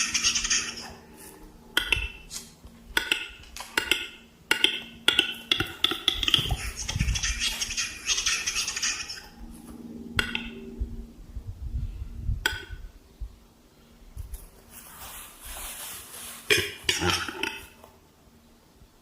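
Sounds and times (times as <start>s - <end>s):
rustling hiss: 13.4s - 18.9s.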